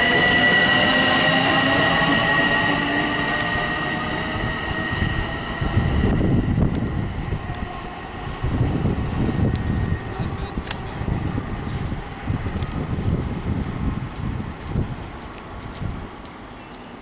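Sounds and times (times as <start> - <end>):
train wheels squealing: 0.0 - 7.3
train cars rumbling: 0.0 - 16.5.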